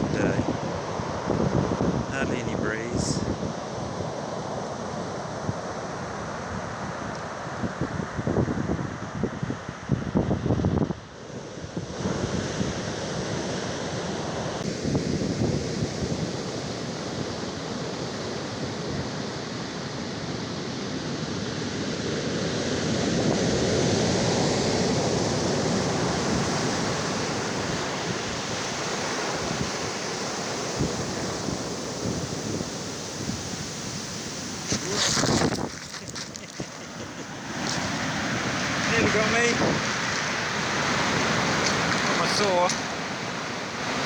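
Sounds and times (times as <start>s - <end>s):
waves breaking on stony beach: 11.2s - 44.0s.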